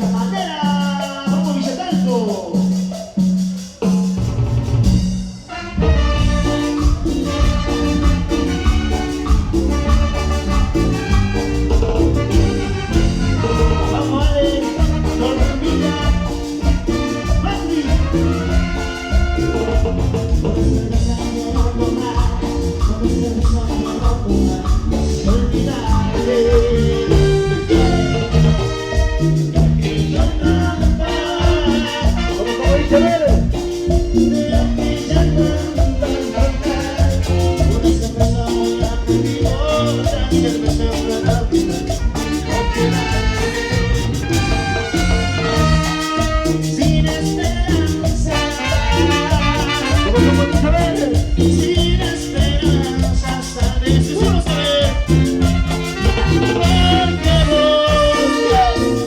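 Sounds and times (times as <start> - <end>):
band playing latin dance music: 0.0 - 59.0.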